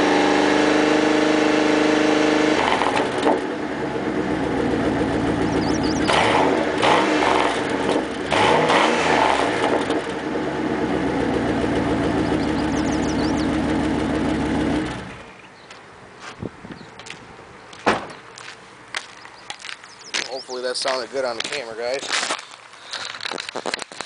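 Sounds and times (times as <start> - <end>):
car engine idling and revving: 0.0 - 15.6.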